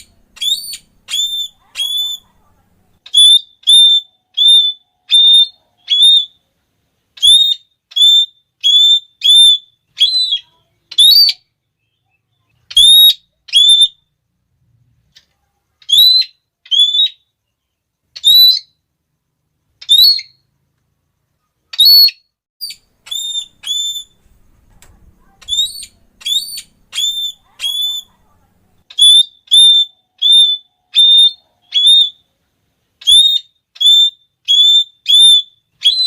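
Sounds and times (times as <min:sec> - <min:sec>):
parrot shrill calls: 0:00.0 - 0:02.3, 0:03.0 - 0:06.4, 0:07.2 - 0:11.5, 0:12.7 - 0:14.0, 0:15.8 - 0:17.3, 0:18.2 - 0:18.8, 0:19.8 - 0:20.4, 0:21.7 - 0:24.3, 0:25.2 - 0:28.3, 0:28.9 - 0:32.3, 0:33.0 - 0:36.0.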